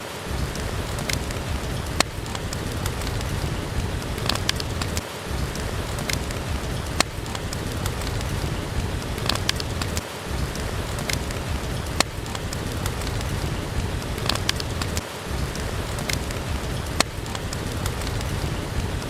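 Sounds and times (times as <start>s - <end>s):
steady rain: 0.0s - 19.0s
wood fire crackling and popping: 0.0s - 19.0s.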